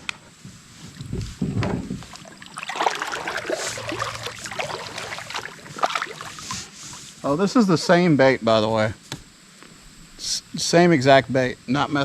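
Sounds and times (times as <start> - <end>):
water splashing and sloshing: 0.8 - 7.2.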